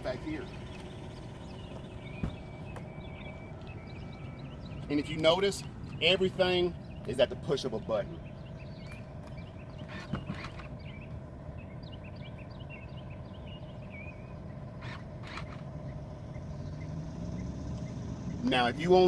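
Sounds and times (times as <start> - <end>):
electric seat motor humming: 11.8 - 18.5.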